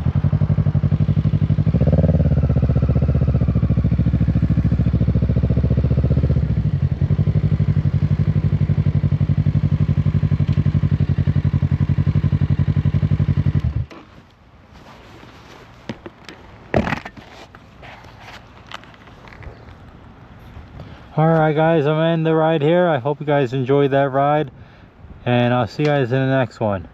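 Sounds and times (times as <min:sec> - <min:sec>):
motorcycle engine running: 0:00.0 - 0:14.1.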